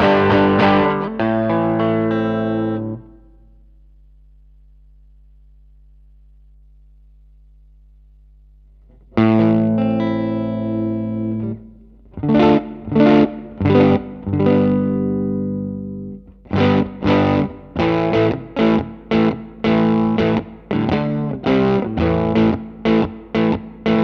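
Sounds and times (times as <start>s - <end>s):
electric guitar chords: 0.0s - 3.4s, 8.9s - 24.0s
faint steady hum: 0.0s - 24.0s.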